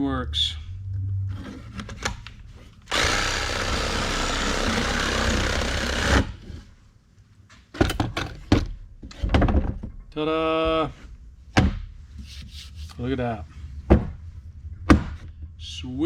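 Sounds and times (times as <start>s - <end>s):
reciprocating saw cutting wood: 2.9s - 6.4s
sharp knocks: 14.8s - 15.3s.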